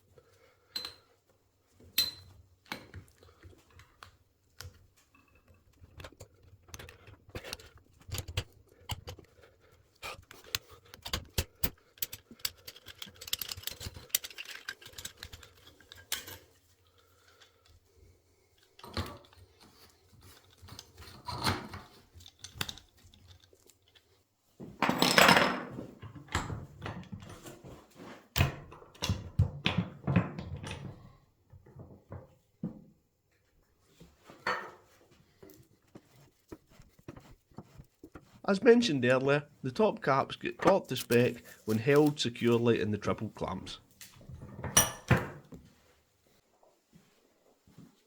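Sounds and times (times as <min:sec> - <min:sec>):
metal tools clinking on a bench: 0:00.7 - 0:01.1, 0:01.8 - 0:03.0, 0:10.5 - 0:17.8, 0:24.8 - 0:25.7, 0:44.4 - 0:45.4
metal parts clattering: 0:10.4 - 0:16.6.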